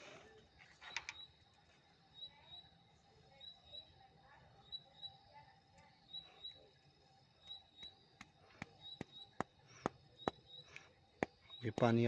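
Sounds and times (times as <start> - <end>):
birds chirping: 5.9 - 12.0.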